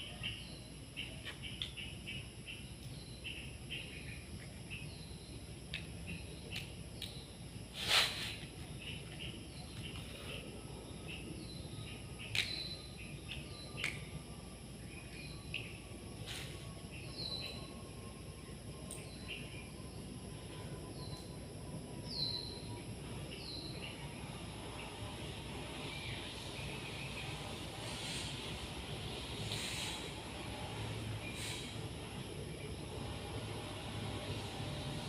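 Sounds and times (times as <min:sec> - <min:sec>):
birds chirping: 0:22.0 - 0:35.0.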